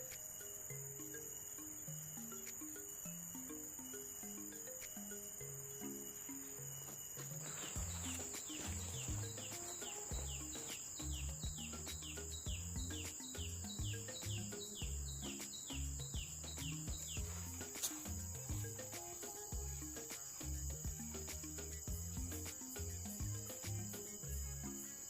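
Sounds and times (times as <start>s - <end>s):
high-pitched insect drone: 0.0s - 25.0s
quick descending chirps: 7.4s - 16.0s
music with bass line: 7.6s - 24.8s.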